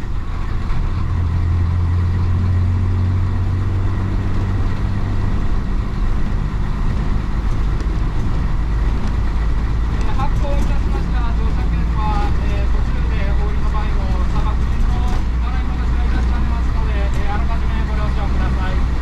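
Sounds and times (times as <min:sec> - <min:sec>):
bus diesel engine humming: 0:00.0 - 0:19.0.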